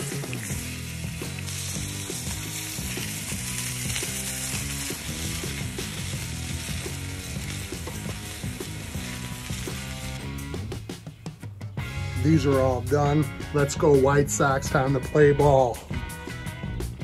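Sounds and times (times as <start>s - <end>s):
sausages sizzling on griddle: 0.0s - 10.8s
background music: 0.0s - 17.0s.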